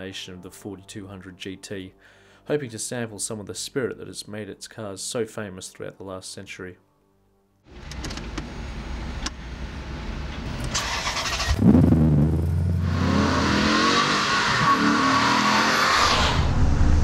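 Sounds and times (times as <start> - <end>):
car engine revving: 7.9 - 17.0.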